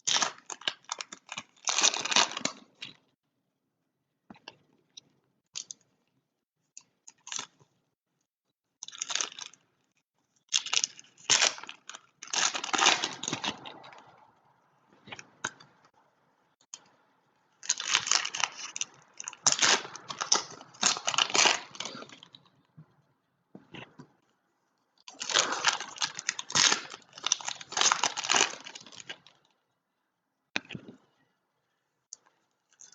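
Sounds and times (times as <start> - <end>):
foil wrappers crinkling and tearing: 0.0 - 3.0, 10.5 - 14.1, 17.6 - 22.4, 25.1 - 29.4.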